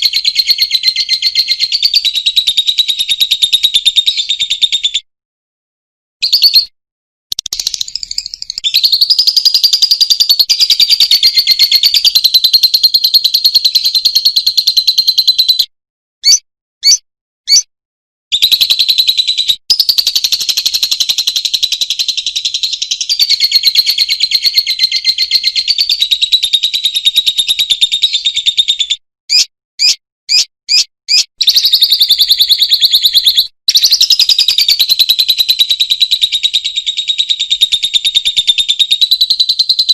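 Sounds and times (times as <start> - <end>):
short bird chirps: 6.2 - 12.8, 15.2 - 17.7, 27.4 - 34.8
lovebird chattering trills: 7.3 - 13.9.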